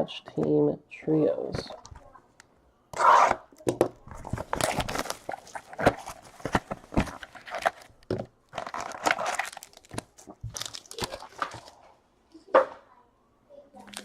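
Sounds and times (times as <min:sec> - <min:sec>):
card pack wrappers crinkling: 0:04.0 - 0:11.8, 0:13.8 - 0:14.0.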